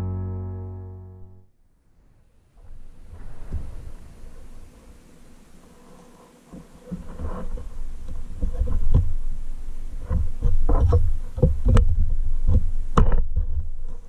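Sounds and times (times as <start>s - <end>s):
plastic knocking and rubbing on wood: 6.5s - 9.4s, 10.0s - 14.0s.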